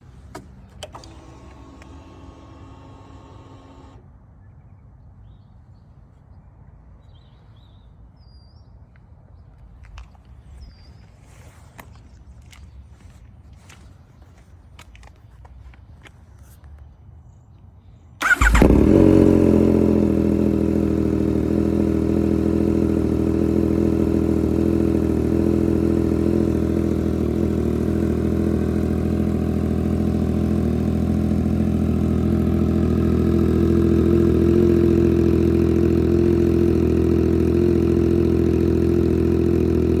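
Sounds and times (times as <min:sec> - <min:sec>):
motorcycle engine starting and idling: 0:00.0 - 0:04.0, 0:18.2 - 0:40.0.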